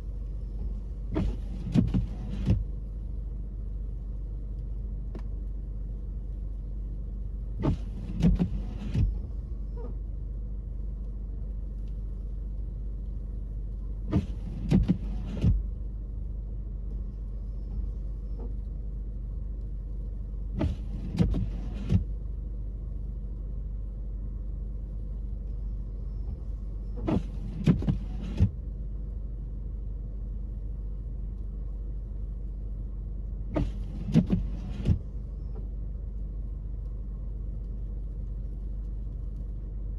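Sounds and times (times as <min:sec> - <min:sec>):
wiper scraping windshield: 0:00.0 - 0:04.0, 0:06.2 - 0:10.2, 0:11.8 - 0:15.9, 0:20.5 - 0:22.3, 0:26.0 - 0:28.8, 0:33.4 - 0:35.8
car cabin hum: 0:00.0 - 0:39.9.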